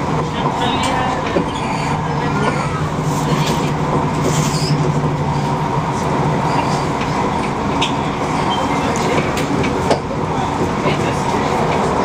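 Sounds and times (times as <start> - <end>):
train hum and rumble: 0.0 - 12.0.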